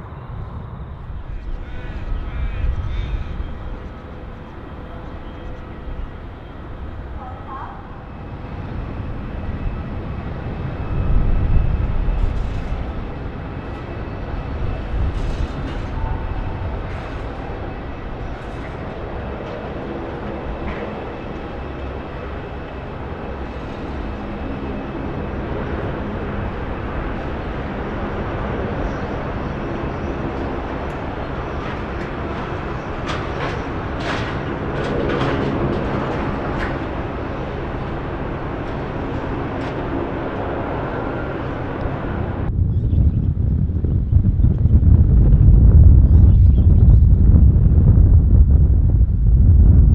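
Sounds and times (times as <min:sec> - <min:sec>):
jet engine rumble: 0:00.0 - 0:49.9.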